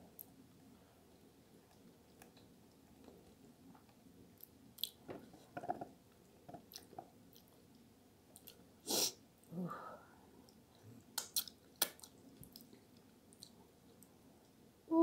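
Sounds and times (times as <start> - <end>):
person chewing food: 6.6 - 8.6.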